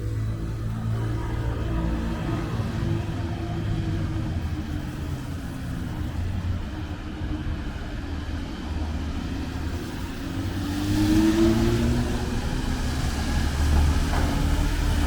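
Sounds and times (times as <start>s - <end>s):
traffic rumble: 0.0s - 15.0s
vehicle driving past: 10.6s - 15.0s.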